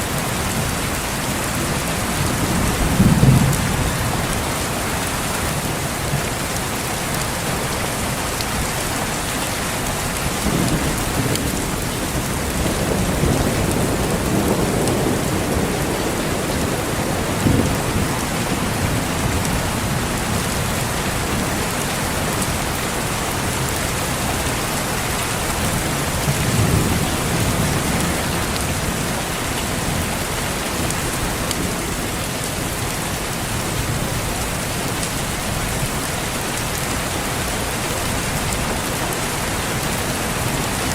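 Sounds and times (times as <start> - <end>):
rain pattering: 0.0 - 40.9
distant thunder rumbling: 10.4 - 20.0.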